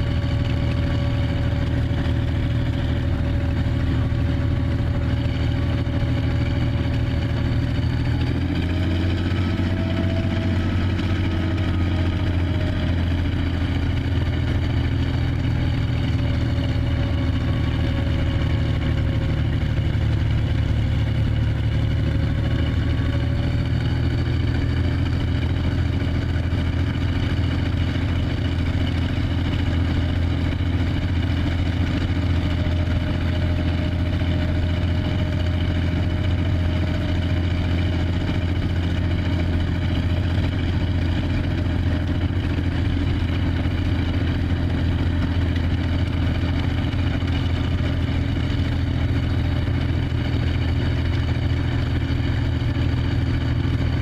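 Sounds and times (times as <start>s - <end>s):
tank engine idling: 0.0s - 54.0s.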